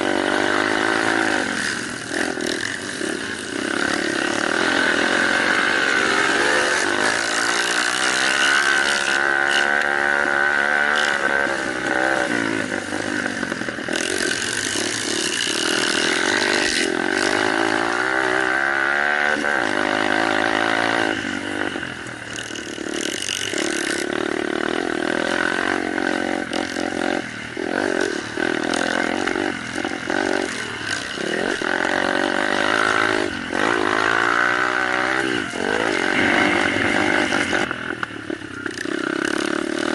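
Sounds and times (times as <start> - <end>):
small motorcycle engines revving: 0.0 - 39.9.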